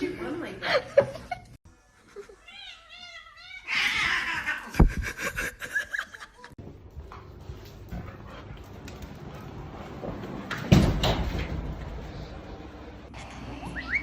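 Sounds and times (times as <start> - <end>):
cat yowling: 2.5 - 4.7.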